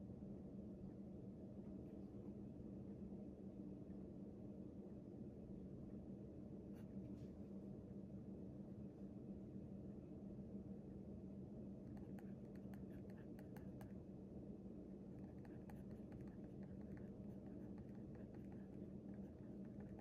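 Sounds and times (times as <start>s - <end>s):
low room hum: 0.0s - 20.0s
pen scratching on paper: 11.9s - 13.9s, 15.1s - 20.0s.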